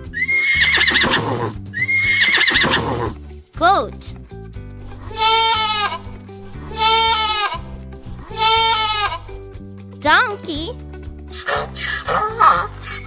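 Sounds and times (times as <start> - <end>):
light background music: 0.0 - 13.0
goat bleating: 4.9 - 9.4.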